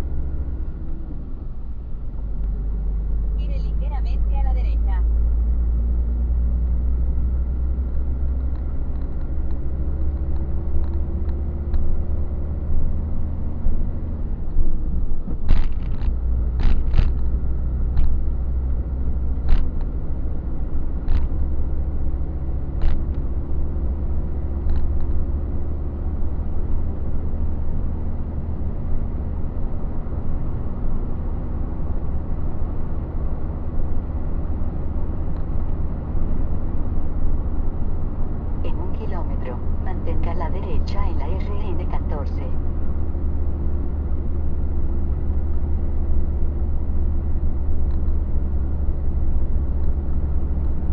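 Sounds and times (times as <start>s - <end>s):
truck engine droning: 0.0s - 50.9s.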